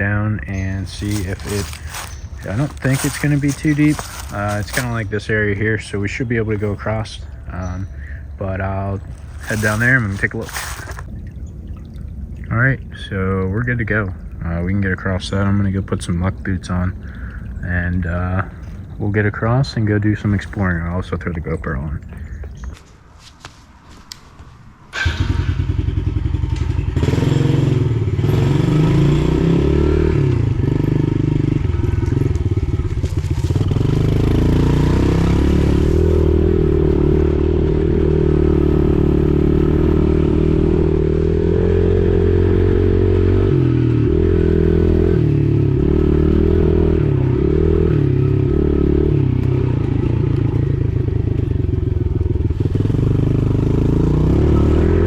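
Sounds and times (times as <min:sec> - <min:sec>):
pit bike engine revving: 0:00.0 - 0:11.1, 0:24.9 - 0:55.0.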